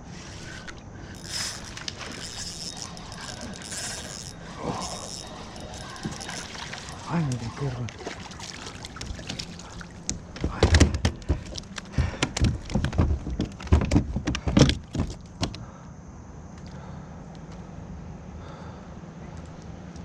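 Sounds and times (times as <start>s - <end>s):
hollow knocks against kayak: 9.0s - 15.6s.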